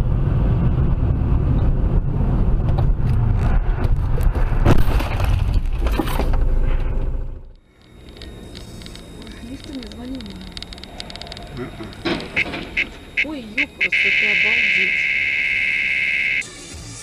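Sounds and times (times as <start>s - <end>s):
car engine and road noise: 0.0s - 17.0s
sharp knocks: 12.0s - 13.0s.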